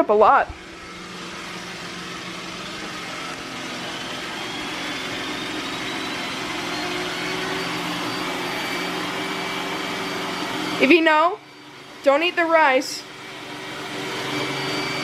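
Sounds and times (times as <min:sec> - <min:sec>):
vacuum motor running: 0:00.2 - 0:15.0
faint whine rising in pitch: 0:00.5 - 0:11.9.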